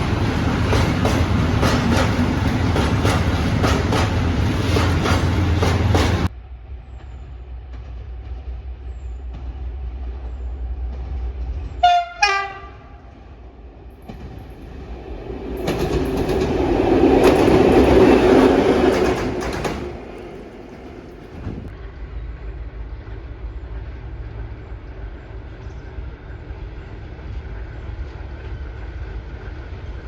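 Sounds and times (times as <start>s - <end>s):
train passing with rumble: 0.0s - 30.0s
train horn two notes: 11.8s - 13.1s.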